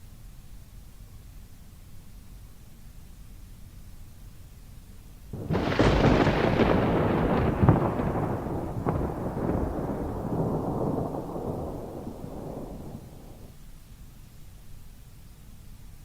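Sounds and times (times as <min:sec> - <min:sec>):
crackling snaps: 0:05.4 - 0:13.6
thunder crack and rumble: 0:05.4 - 0:13.6.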